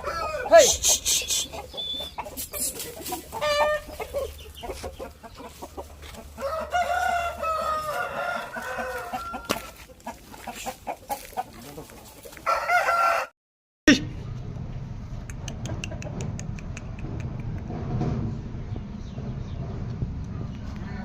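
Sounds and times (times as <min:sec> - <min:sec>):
rooster crowing: 0:00.0 - 0:00.8, 0:03.4 - 0:04.0, 0:06.2 - 0:09.8, 0:12.4 - 0:13.3
chicken calls: 0:00.0 - 0:13.3
scattered clicks: 0:15.2 - 0:17.7.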